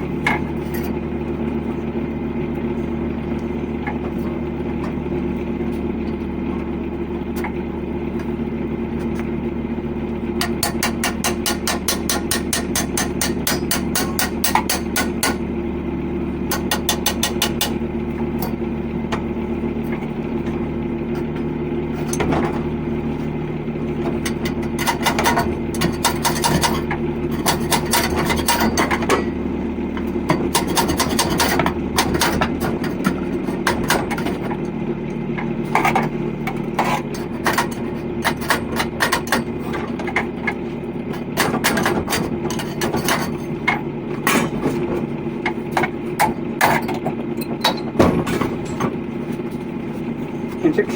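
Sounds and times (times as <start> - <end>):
steady machine hum: 0.0 - 50.9
tapping and scraping on metal: 10.4 - 15.4, 16.5 - 22.7, 24.0 - 29.4, 30.0 - 49.7.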